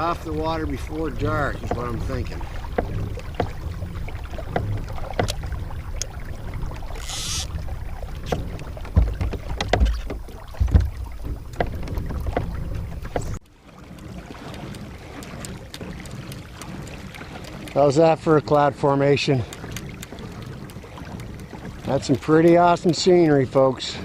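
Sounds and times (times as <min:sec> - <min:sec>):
knocks and clicks against hull: 0:00.0 - 0:24.0
wind rumble on microphone: 0:00.0 - 0:24.0.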